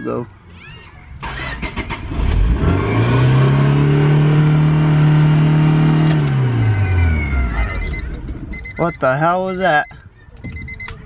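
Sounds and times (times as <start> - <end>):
car engine starting and revving: 1.2 - 8.6.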